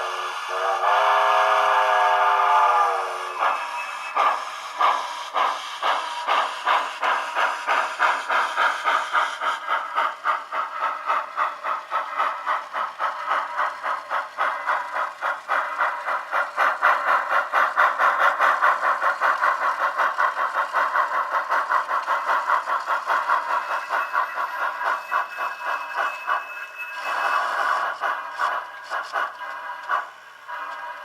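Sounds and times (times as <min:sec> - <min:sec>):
steam whistle from small speaker: 0:00.0 - 0:04.2
steam exhaust chuffs: 0:00.0 - 0:31.0.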